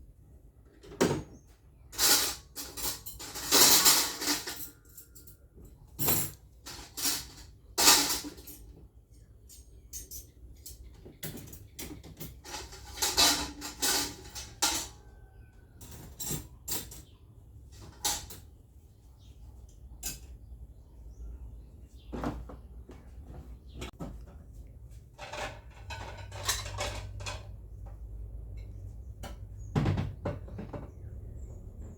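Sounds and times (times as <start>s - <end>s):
kitchen items knocking and rustling: 0.7s - 8.9s, 9.5s - 18.6s, 22.0s - 31.4s.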